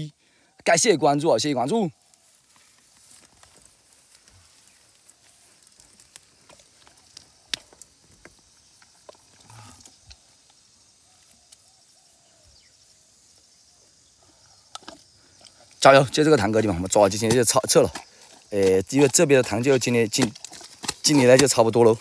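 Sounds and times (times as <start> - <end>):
faint high hiss: 0.0 - 16.2
hands working in wet mud: 15.5 - 22.0.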